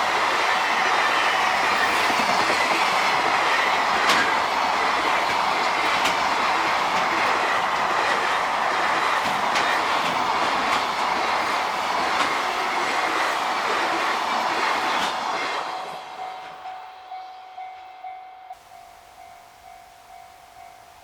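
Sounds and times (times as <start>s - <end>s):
wheels clicking on rail joints: 0.0s - 16.8s
freight train rumbling past: 0.0s - 21.0s.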